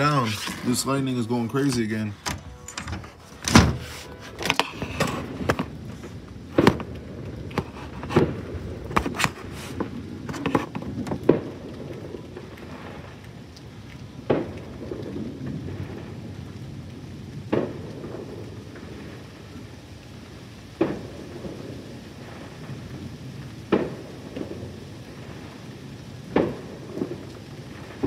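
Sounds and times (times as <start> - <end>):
low thunder rumble: 0.0 - 28.0
steady rain: 0.0 - 28.0
sharp cracks: 4.4 - 13.3.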